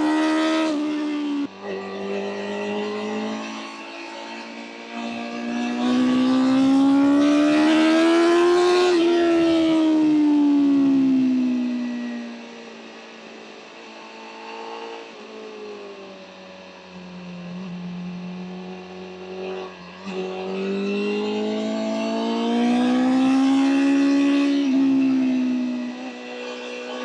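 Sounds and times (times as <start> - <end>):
motorcycle engine revving: 0.0 - 1.5, 5.4 - 10.0, 17.7 - 27.0.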